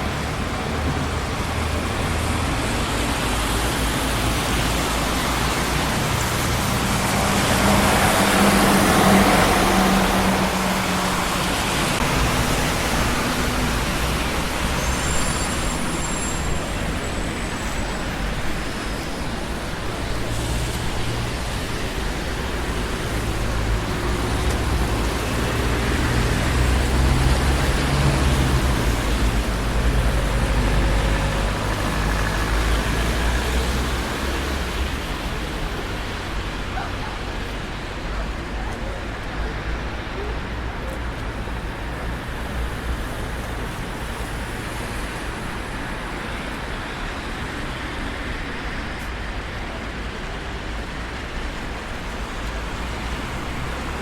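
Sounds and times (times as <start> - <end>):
heavy vehicle passing: 0.0 - 18.4
heavy road traffic: 0.0 - 54.0.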